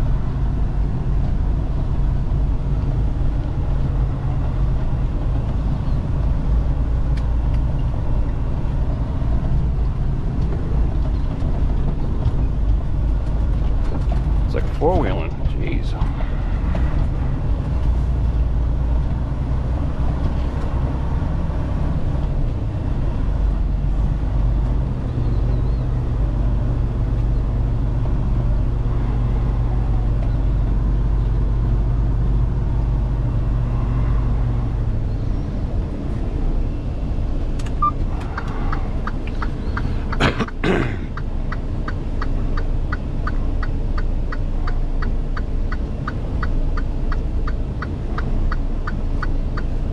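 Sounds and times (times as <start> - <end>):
diesel truck engine running: 0.0 - 49.9.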